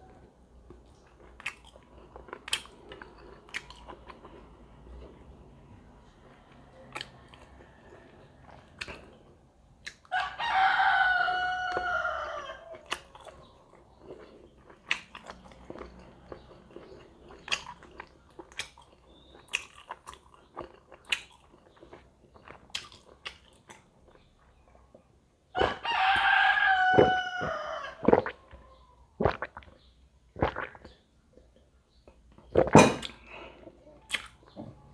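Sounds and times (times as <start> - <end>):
chewing and eating clicks: 0.7 - 5.2, 6.5 - 10.1, 12.8 - 24.3
rooster crowing: 10.1 - 12.9, 25.6 - 28.2.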